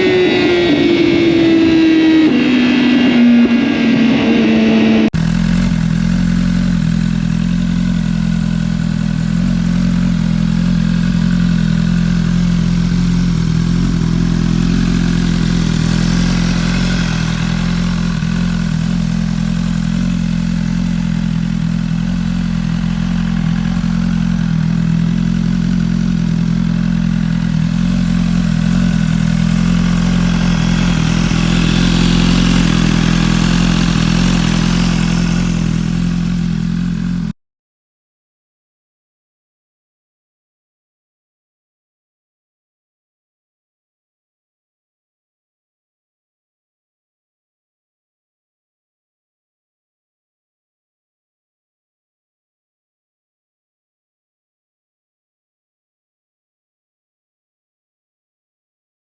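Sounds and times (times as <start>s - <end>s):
falling tones: 0.0s - 5.1s
motorcycle engine running steadily: 0.0s - 37.4s.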